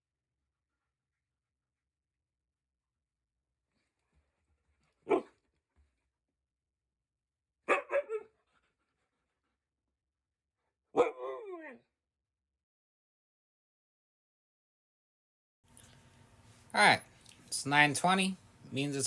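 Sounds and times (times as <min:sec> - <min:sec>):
dog barking: 0:05.0 - 0:05.4, 0:07.7 - 0:08.3, 0:11.0 - 0:11.7.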